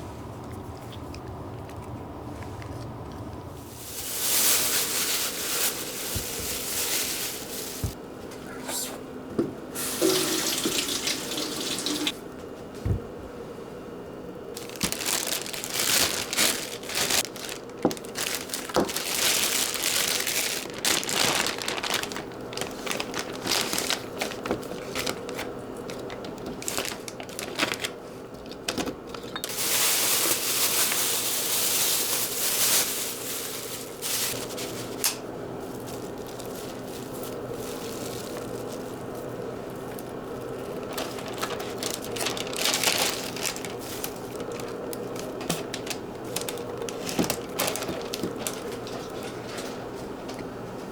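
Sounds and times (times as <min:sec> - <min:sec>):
tap water running into sink: 0:09.9 - 0:12.2.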